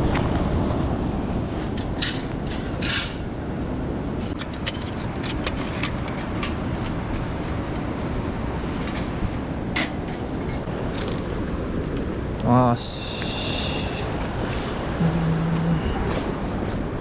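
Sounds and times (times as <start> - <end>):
handling clicks and scrapes: 1.3 - 3.4, 4.2 - 11.2
mountain stream rushing: 5.9 - 17.0.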